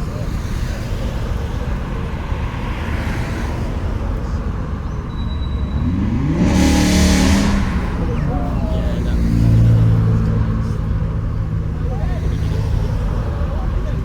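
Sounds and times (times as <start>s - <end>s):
car engine revving: 1.3s - 13.6s
loud rushing exhaust: 5.0s - 11.6s.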